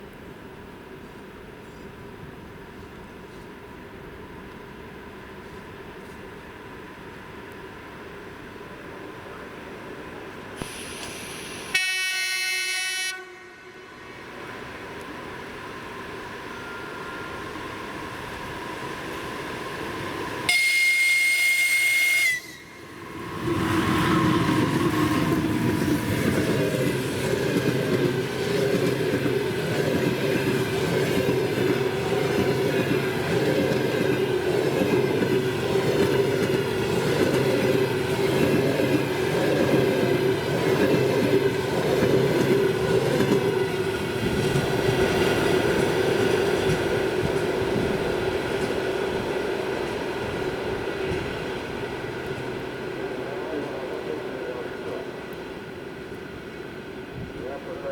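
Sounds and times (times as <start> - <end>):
locomotive whistle blast: 10.7 - 13.9, 20.5 - 22.9
train wheels rumbling on rails: 14.2 - 57.9.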